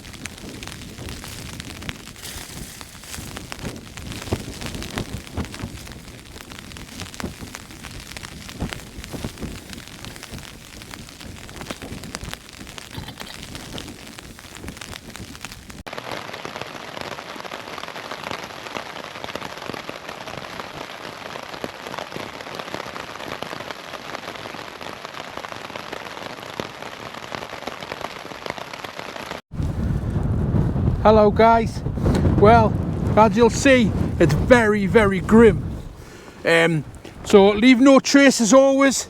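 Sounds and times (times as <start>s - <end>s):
rain pattering on tent fabric: 0.0s - 39.0s
low rumbles: 29.6s - 37.8s.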